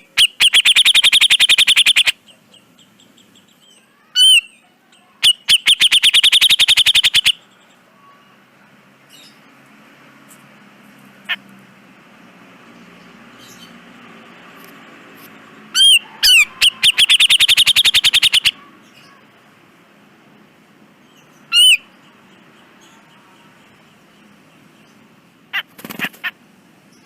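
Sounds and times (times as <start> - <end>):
bird rattling calls: 0.2 - 2.1, 15.8 - 18.6, 25.5 - 26.4.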